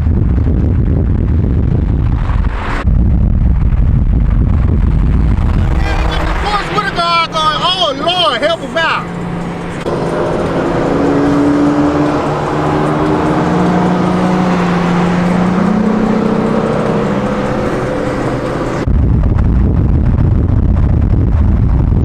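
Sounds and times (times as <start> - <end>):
deep low rumble: 0.0 - 7.8, 18.8 - 22.0
road and tyre noise: 0.0 - 22.0
car engines revving: 3.6 - 18.9.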